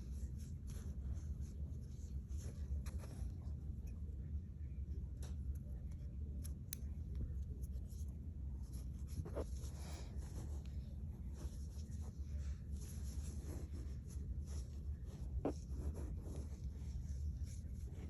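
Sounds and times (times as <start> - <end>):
low steady hum: 0.0 - 18.0
yarn rubbing and rustling: 7.7 - 18.0.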